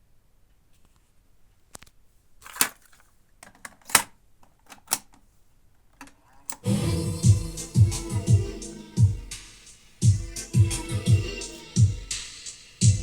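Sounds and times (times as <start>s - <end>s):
cassette deck mechanism clicks: 3.4s - 5.2s, 6.0s - 6.7s
music playing from tape: 6.6s - 13.0s.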